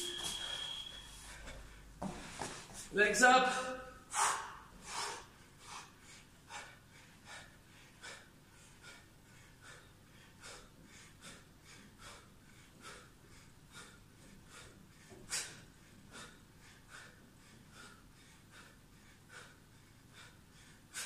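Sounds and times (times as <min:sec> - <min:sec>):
person breathing hard: 0:00.2 - 0:02.9, 0:03.5 - 0:21.0.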